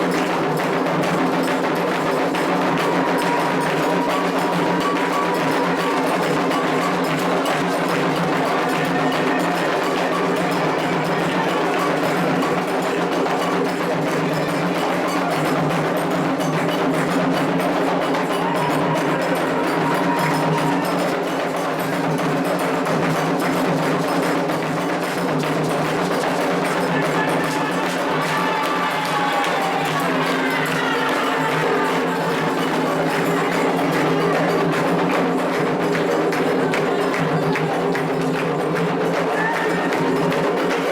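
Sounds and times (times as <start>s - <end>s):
hand drums: 0.0s - 40.9s
voices singing: 26.3s - 38.0s.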